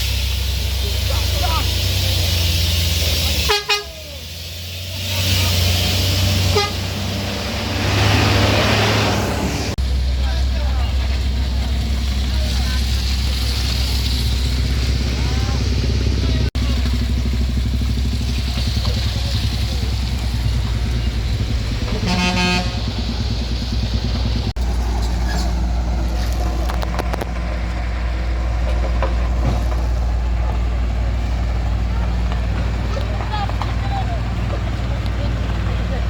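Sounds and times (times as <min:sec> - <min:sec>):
vehicle engines rumbling: 0:00.0 - 0:36.0
short horn toot: 0:03.4 - 0:04.2, 0:06.4 - 0:07.0, 0:22.0 - 0:22.8.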